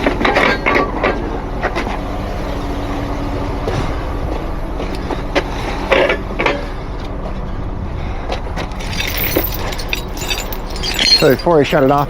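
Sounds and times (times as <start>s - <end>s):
metal clinks and knocks: 8.7s - 12.0s.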